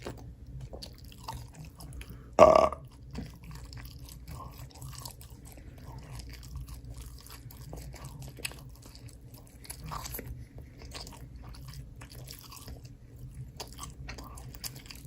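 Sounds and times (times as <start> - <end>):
wet chewing: 0.0 - 15.0
loud burp: 2.4 - 2.8.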